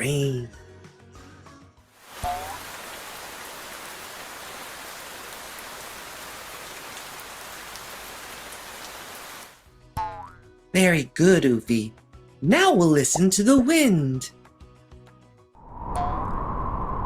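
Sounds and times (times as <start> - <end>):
steady rain falling: 2.0 - 9.6.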